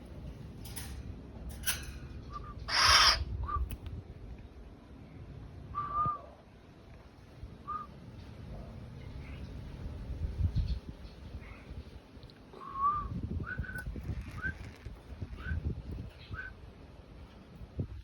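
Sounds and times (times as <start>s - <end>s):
bird hooting notes: 2.3s - 3.2s
harsh rasping bird call: 2.4s - 3.3s.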